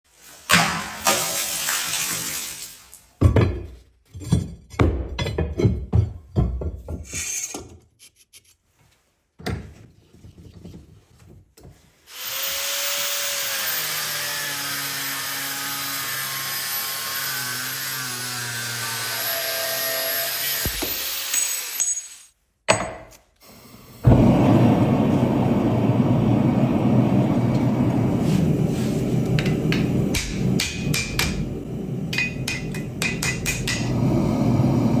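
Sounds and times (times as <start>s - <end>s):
metal knocks and clanks: 3.2s - 7.8s
power tool cutting metal: 12.1s - 22.3s.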